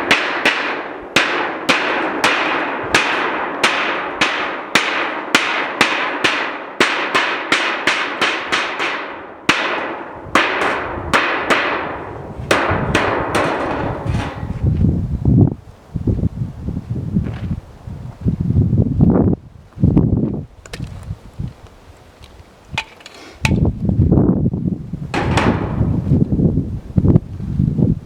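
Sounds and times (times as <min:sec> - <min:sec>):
hammer blows on sheet steel: 0:00.0 - 0:14.9, 0:25.1 - 0:26.3.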